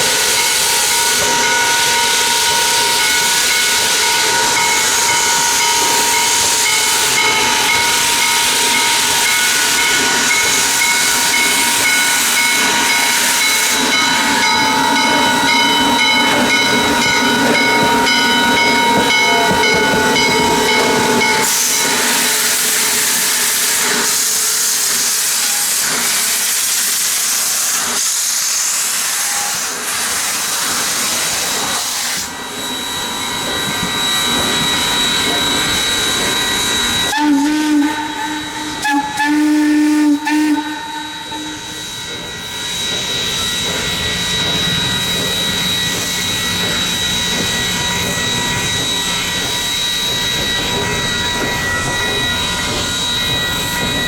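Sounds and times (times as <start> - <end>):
steam hissing: 0.0 - 54.0
steam whistle chord: 36.6 - 42.6.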